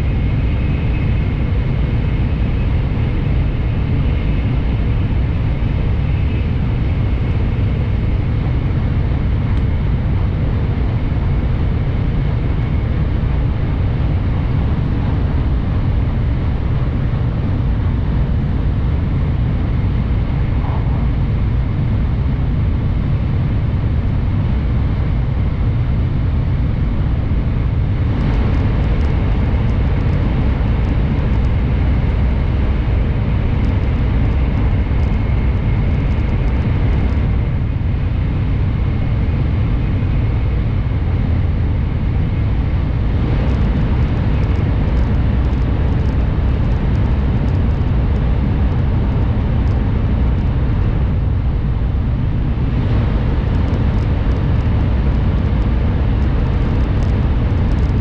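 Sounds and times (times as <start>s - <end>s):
train cabin rumble: 20.0s - 22.5s.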